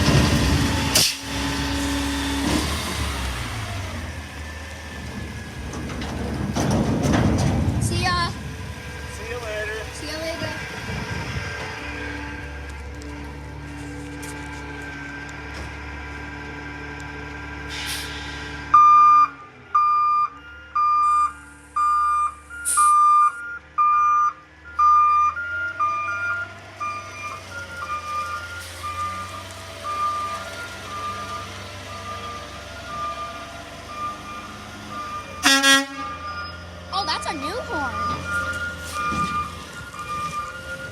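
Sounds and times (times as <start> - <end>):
truck engine running: 0.0 - 40.9
backup alarm beeping: 18.8 - 40.7.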